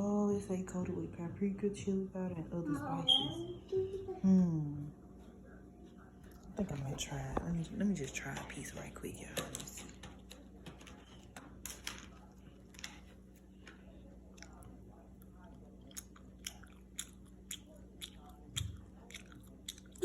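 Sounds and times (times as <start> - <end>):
person chewing food: 13.4 - 20.0.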